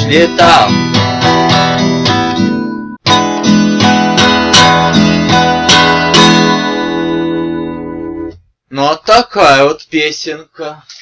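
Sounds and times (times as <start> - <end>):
acoustic guitar strumming chords: 0.0 - 8.4.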